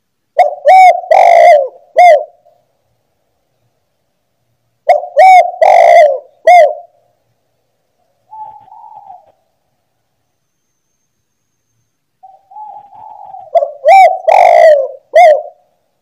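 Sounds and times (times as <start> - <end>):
dove cooing: 0.4 - 2.6, 4.8 - 7.0, 8.3 - 9.4, 12.2 - 15.7.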